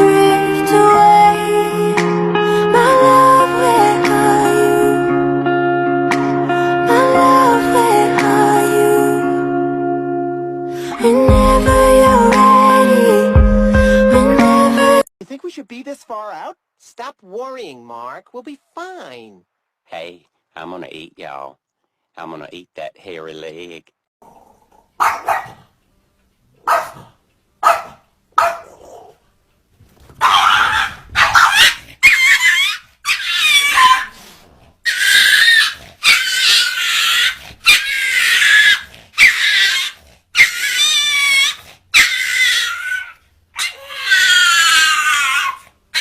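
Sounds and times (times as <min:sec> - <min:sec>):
dog howling: 0:34.9 - 0:46.0.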